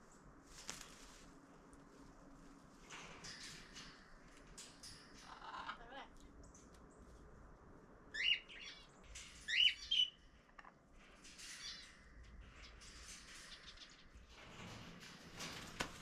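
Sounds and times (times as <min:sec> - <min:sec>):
birds rising chirps: 0:08.1 - 0:10.5
birds chattering: 0:08.2 - 0:10.7.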